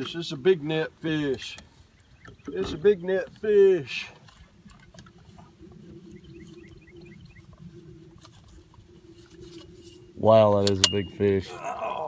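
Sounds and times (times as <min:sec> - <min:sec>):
small bird chirping: 0:06.0 - 0:07.6.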